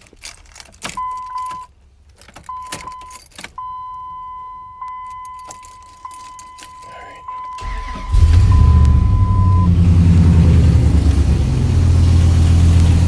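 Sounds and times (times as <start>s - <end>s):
keys jangling: 0.0s - 3.6s, 5.0s - 7.5s.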